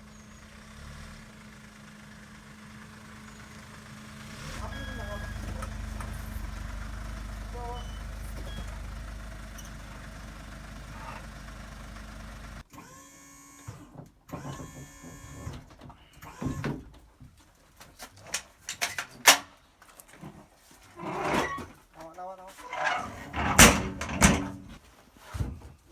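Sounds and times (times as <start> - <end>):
truck engine idling: 0.0 - 12.7, 22.8 - 24.8
knocks and clanks of handling: 15.6 - 25.9.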